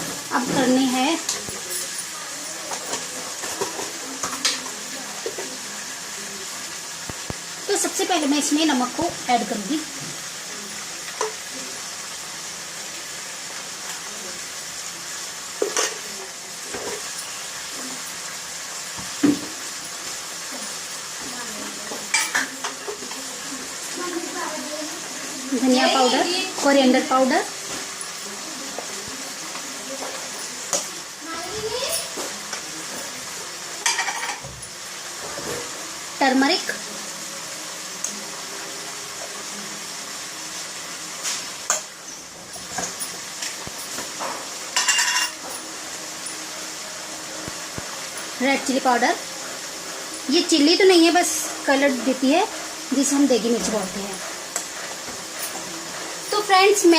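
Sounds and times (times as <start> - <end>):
vegetables sizzling in oil: 0.0 - 56.9
metal spoon clinking on pan: 33.8 - 34.4, 44.8 - 45.6.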